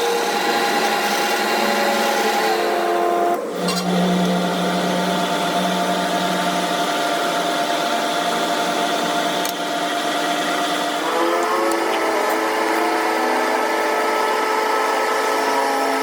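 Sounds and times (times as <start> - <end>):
power tool motor humming: 0.0 - 16.0.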